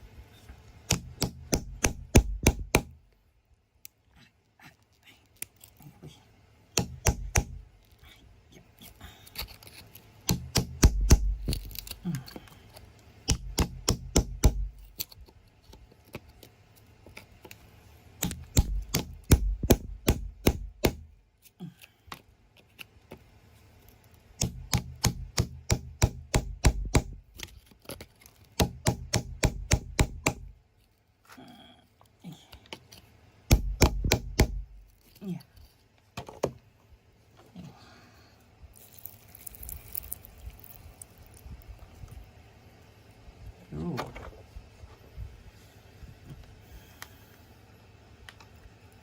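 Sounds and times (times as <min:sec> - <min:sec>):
metal tool chipping rock: 0:00.9 - 0:02.9, 0:06.8 - 0:07.6, 0:10.2 - 0:12.0, 0:13.3 - 0:15.1, 0:18.2 - 0:21.1, 0:24.4 - 0:27.5
dull thuds: 0:18.2 - 0:21.1, 0:33.5 - 0:34.8.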